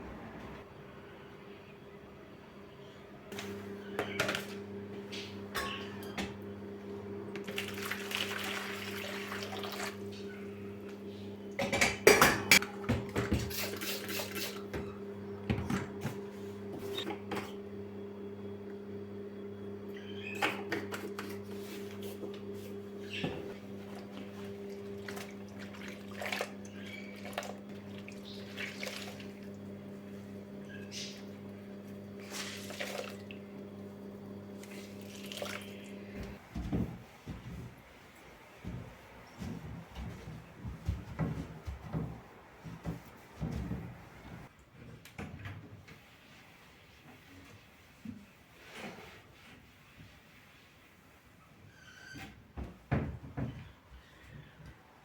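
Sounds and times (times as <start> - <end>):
dishes and utensils clattering: 5.5 - 6.3, 11.6 - 14.8.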